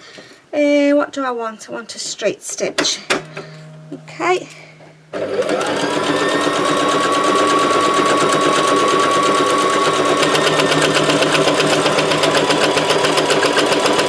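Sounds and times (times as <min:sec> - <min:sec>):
sewing machine stitching: 0:05.2 - 0:14.0.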